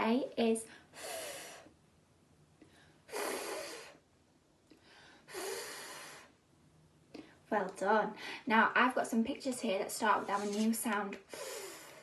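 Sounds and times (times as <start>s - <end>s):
woman making fff hiss: 3.1s - 4.0s.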